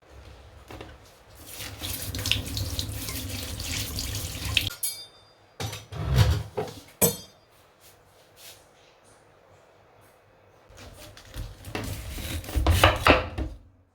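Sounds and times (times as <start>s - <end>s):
tap water running into sink: 1.4s - 4.7s.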